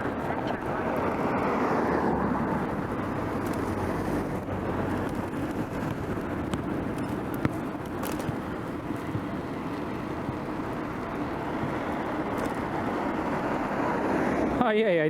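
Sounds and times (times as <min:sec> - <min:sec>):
wind and bicycle tyre rumble: 0:00.0 - 0:15.0.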